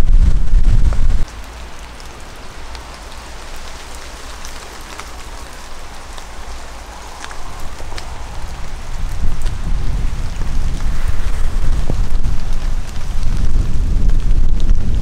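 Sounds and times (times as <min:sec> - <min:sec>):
low steady rumble: 0:00.0 - 0:01.3
rain falling: 0:00.0 - 0:15.0
raindrops ticking: 0:00.1 - 0:15.0.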